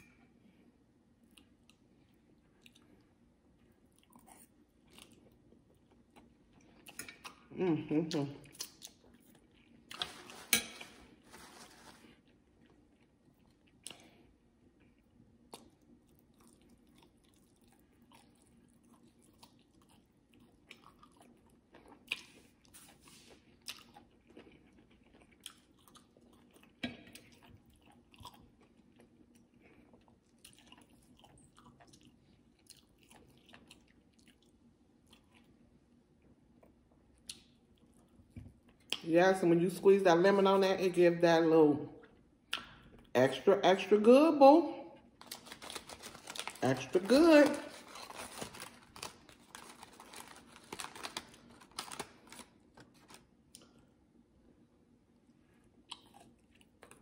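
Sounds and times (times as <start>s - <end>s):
person chewing food: 1.1s - 7.5s, 8.1s - 39.0s, 55.2s - 57.0s.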